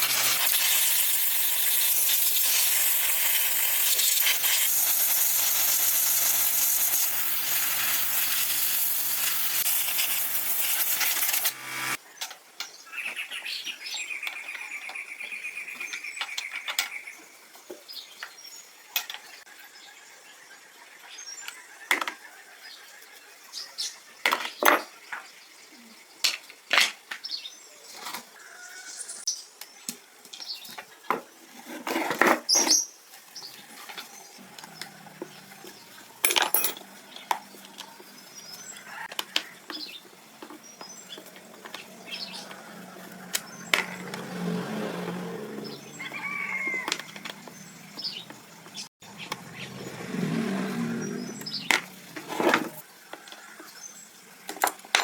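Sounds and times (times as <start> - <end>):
metallic clinks: 36.2 - 36.9.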